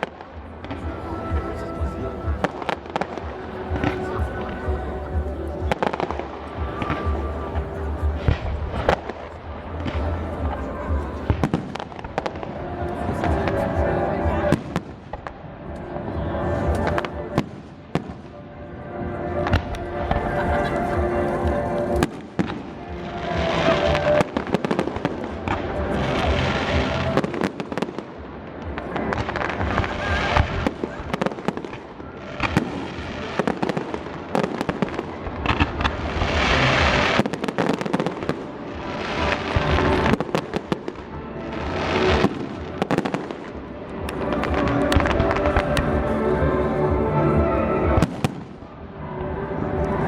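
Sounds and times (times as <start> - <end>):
firework crackling: 0.0 - 18.4, 19.2 - 48.8.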